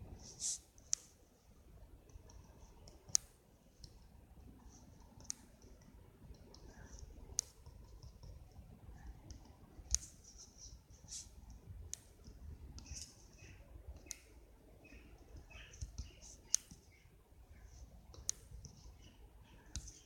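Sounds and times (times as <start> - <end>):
faint soft scratching: 0.1 - 1.2, 6.6 - 11.4.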